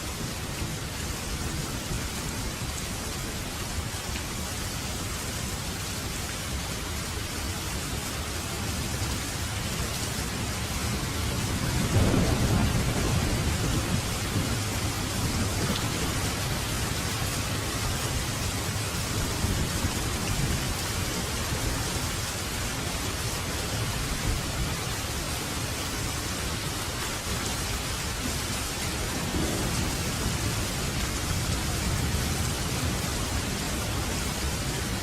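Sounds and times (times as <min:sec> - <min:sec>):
heavy rain: 0:00.0 - 0:35.0
low thunder rumble: 0:10.6 - 0:21.8, 0:28.8 - 0:35.0.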